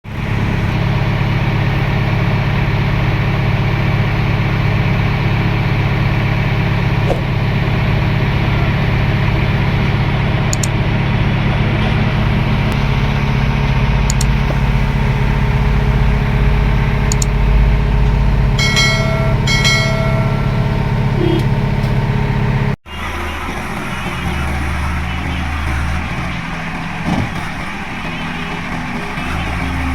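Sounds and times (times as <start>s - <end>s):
diesel engine running: 0.0s - 29.9s
short high-pitched tones: 18.6s - 21.6s.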